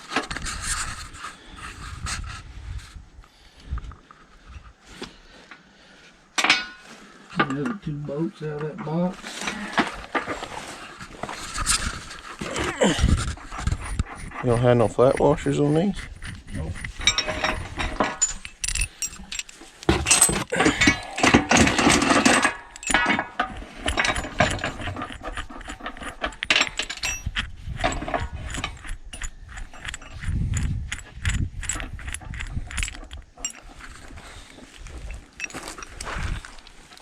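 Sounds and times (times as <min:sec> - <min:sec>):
metal nuts and tools rattling: 0:11.5 - 0:36.6.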